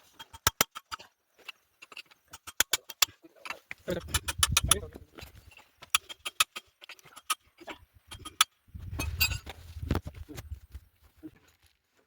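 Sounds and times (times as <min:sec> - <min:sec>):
metal hand tools clicking: 0:01.8 - 0:04.9, 0:05.8 - 0:07.4.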